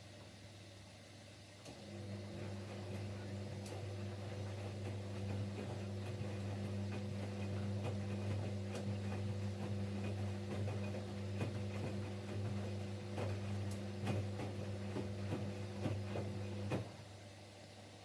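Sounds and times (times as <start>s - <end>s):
washing machine motor hum: 0.3s - 18.0s.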